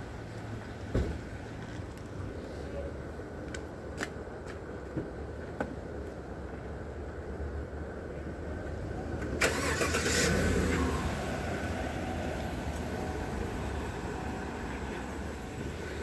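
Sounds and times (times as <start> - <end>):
car engine starting and running: 8.7 - 16.0.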